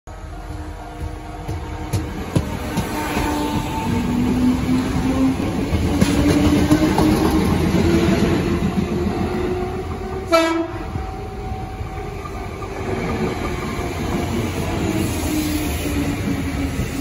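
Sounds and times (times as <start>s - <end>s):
train wheels and motors running: 0.1s - 17.0s
train horn blast: 10.2s - 11.0s.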